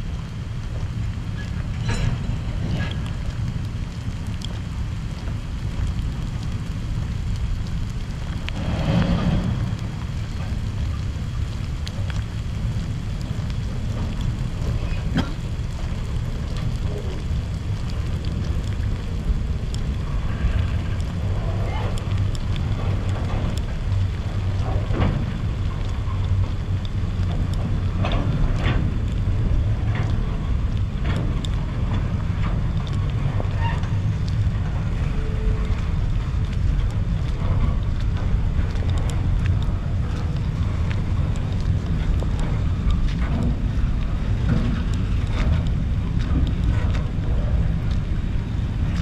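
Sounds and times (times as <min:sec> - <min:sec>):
train wheels rumbling on rail: 0:00.0 - 0:49.0
clicks and knocks from train cars: 0:20.2 - 0:49.0.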